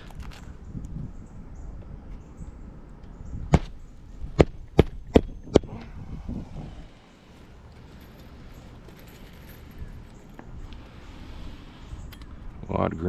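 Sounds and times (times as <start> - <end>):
hatchet striking roofing nail: 3.5 - 3.8, 4.4 - 5.7.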